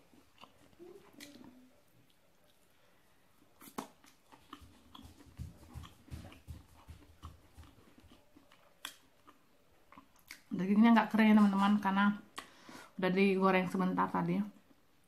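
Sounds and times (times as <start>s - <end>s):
close chewing of meat: 3.4s - 10.5s.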